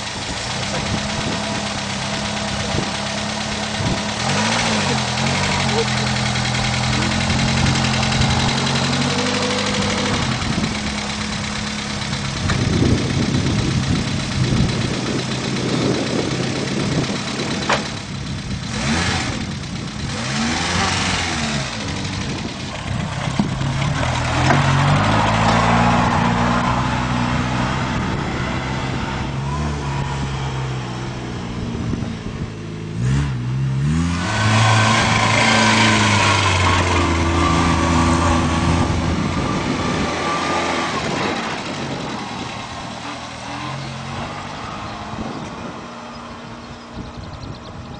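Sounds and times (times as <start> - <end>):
small petrol engine revving: 0.0 - 47.9.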